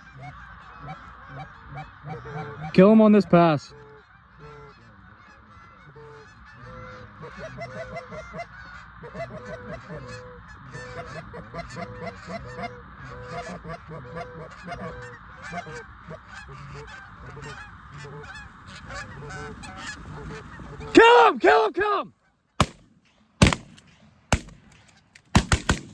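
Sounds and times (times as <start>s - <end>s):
geese honking: 0.0s - 22.5s.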